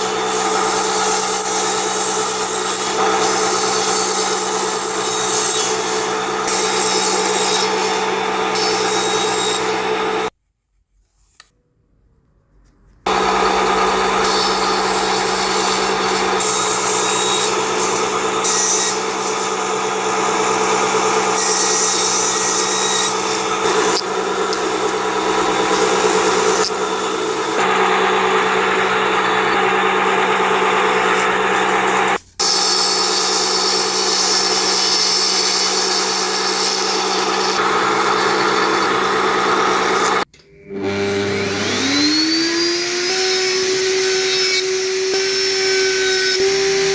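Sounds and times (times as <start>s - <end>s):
power tool rubbing wood: 0.0s - 10.3s, 13.1s - 46.9s
motor hum: 13.1s - 42.1s.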